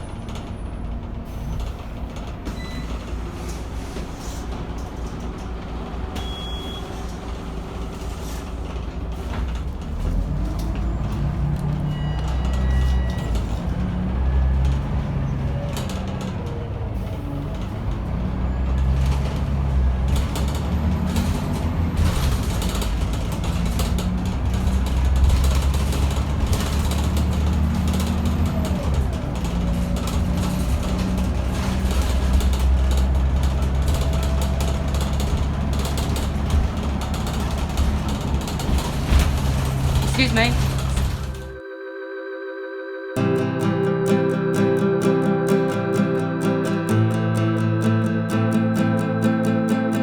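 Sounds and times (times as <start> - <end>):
bus diesel engine under load: 0.0 - 50.0
road rumble: 0.0 - 50.0
body rattles: 17.6 - 41.6.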